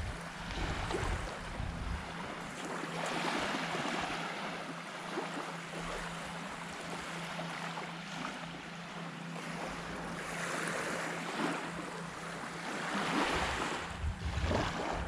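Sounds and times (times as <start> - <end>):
wind on microphone: 0.0 - 2.3, 13.4 - 15.0
small waves washing on sand: 0.0 - 15.0.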